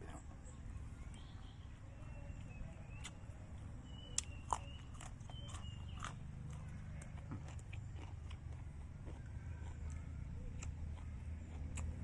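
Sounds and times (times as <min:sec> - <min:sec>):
person biting and chewing: 0:04.2 - 0:12.0.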